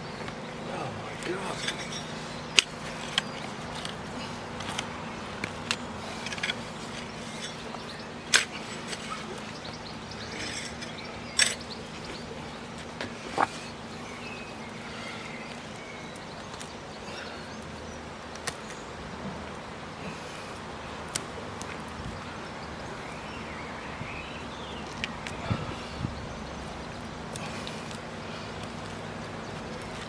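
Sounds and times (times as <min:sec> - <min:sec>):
spade knocking and clinking: 0:01.2 - 0:03.2.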